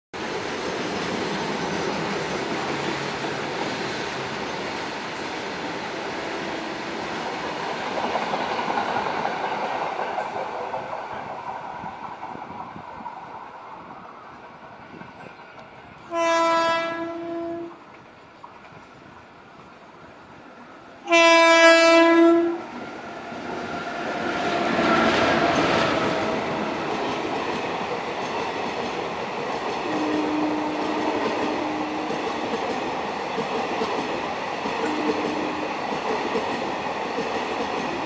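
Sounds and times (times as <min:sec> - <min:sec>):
train rumbling on rails: 0:00.2 - 0:38.0
locomotive horn blast: 0:16.1 - 0:17.8, 0:21.0 - 0:22.8, 0:29.9 - 0:32.1, 0:34.8 - 0:35.7.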